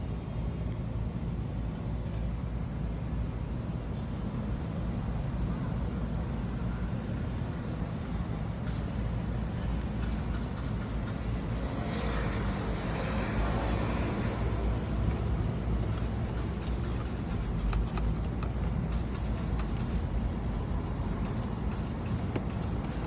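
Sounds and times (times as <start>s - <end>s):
road noise: 7.3s - 23.0s.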